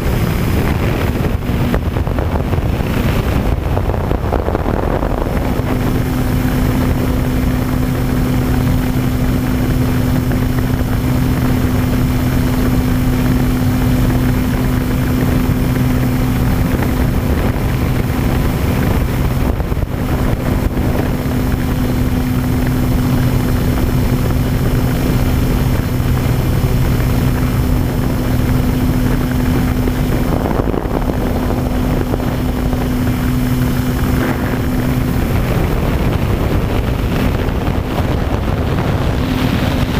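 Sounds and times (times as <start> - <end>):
model plane propeller droning: 0.0 - 39.9
wind rushing over microphone: 0.0 - 39.9.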